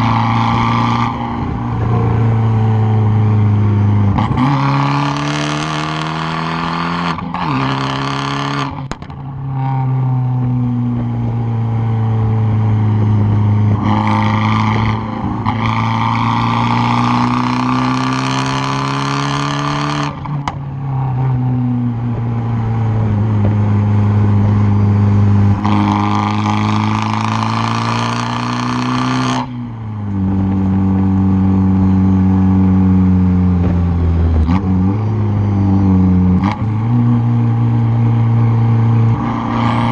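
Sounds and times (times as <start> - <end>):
car exhaust under hard load: 0.0 - 39.9.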